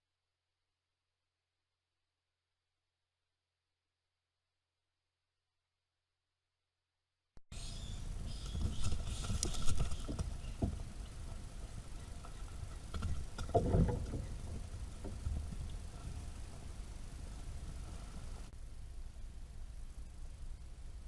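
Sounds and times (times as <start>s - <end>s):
rustles and clicks: 8.2s - 18.5s.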